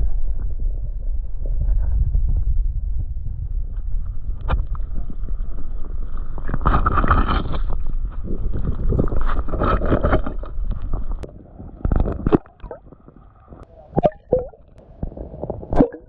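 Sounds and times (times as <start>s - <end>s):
low rumble: 0.0s - 16.0s
water sloshing and splashing: 4.5s - 16.0s.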